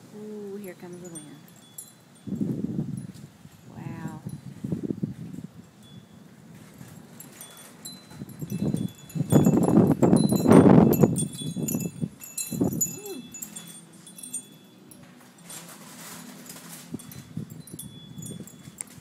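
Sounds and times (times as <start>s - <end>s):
wind buffeting microphone: 0.0s - 14.5s, 16.7s - 19.0s
wind chimes ringing: 0.2s - 19.0s.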